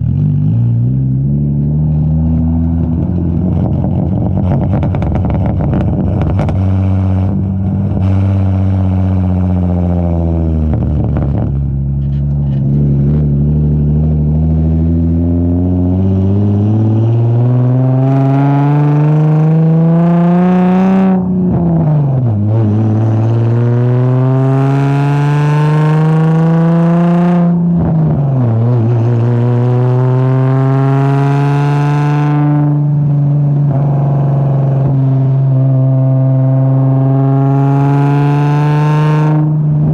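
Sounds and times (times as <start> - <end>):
car exhaust under load: 0.0 - 19.2.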